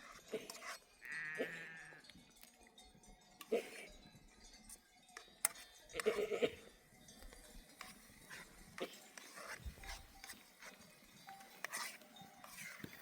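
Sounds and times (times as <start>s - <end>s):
sheep bleating: 1.0s - 2.1s.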